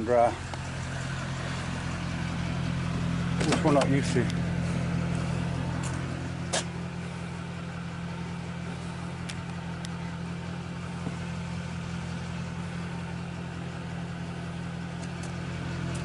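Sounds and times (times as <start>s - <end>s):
truck engine humming: 0.0s - 16.0s.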